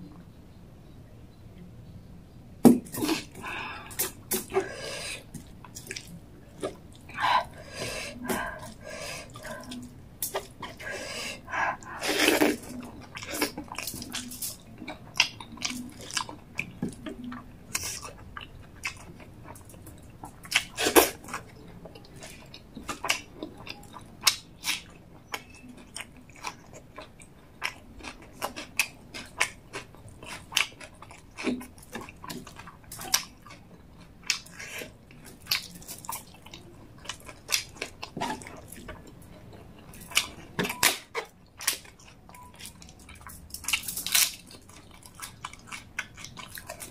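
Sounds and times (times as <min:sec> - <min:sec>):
wet chewing and mouth clicks: 0:02.8 - 0:46.9
crisp crunching bites: 0:42.7 - 0:46.9.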